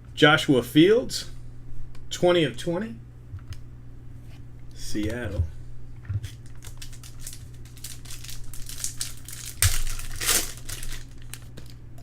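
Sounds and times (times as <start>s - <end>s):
cards shuffling clicks: 6.2s - 11.8s
card packaging rustling: 6.3s - 11.8s.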